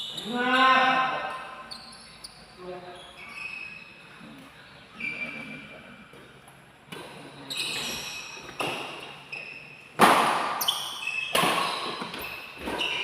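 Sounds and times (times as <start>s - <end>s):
shoes squeaking on court: 0.0s - 6.3s, 6.9s - 13.0s
rackets striking shuttlecock: 10.0s - 12.9s.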